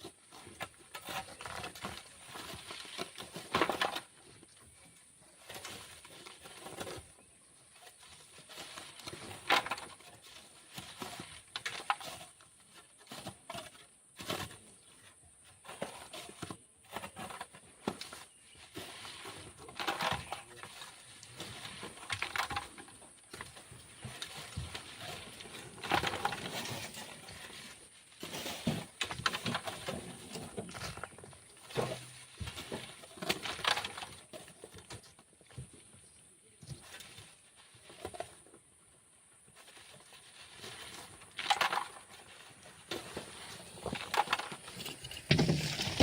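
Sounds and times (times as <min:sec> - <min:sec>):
shovel scraping sand: 0:25.3 - 0:29.0.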